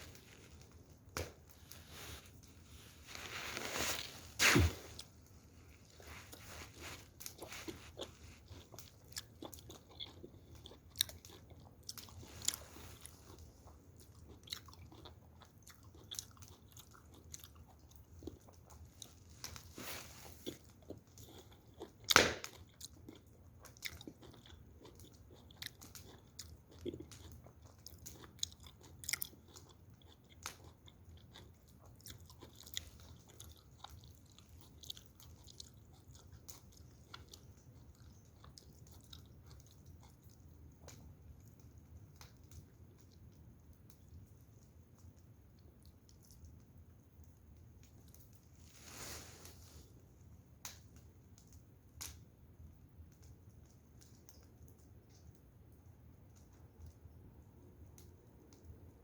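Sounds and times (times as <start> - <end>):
person chewing crunchy food: 0.0 - 41.6.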